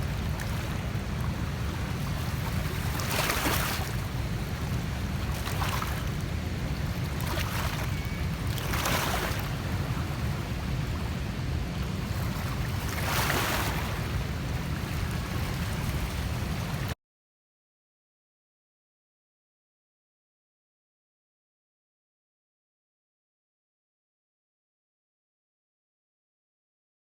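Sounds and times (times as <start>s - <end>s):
rushing wave-like water noise: 0.0s - 17.0s
wind rumble on microphone: 0.0s - 17.0s.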